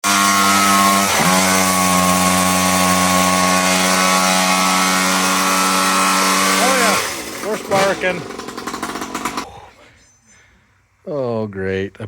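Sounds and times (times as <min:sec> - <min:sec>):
chainsaw engine at full throttle: 0:00.0 - 0:09.5.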